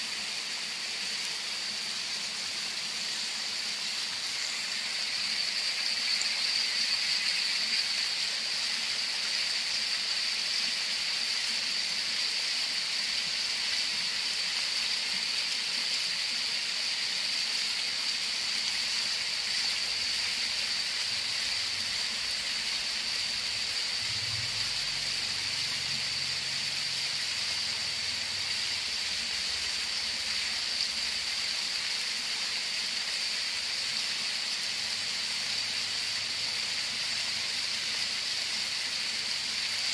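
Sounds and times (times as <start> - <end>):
waterfall rushing: 0.0 - 10.1.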